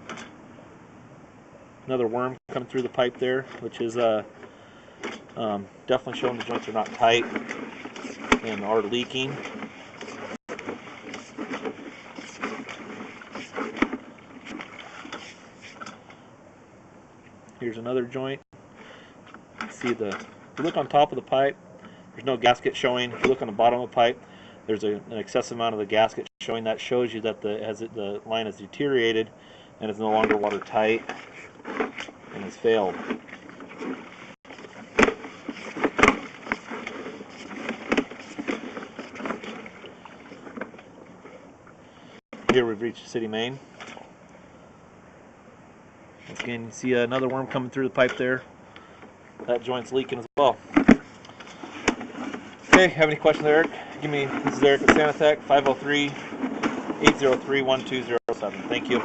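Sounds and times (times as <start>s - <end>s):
camera cable knocking and scraping in pipe: 6.1s - 16.1s, 30.1s - 41.4s, 50.7s - 59.0s.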